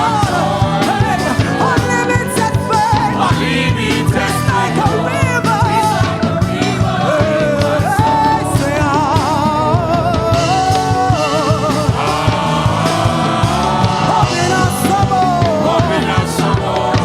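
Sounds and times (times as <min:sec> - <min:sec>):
church band playing gospel music: 0:00.0 - 0:17.0
person singing: 0:00.0 - 0:17.0.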